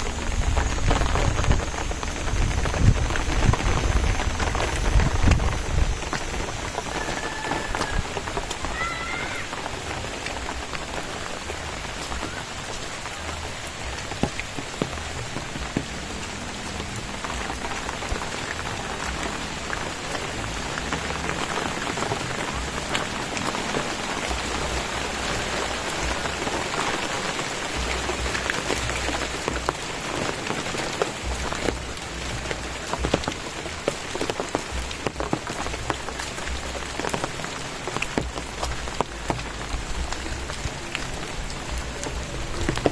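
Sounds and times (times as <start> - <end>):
low rumble: 0.0 - 7.0
rain falling: 0.0 - 42.9.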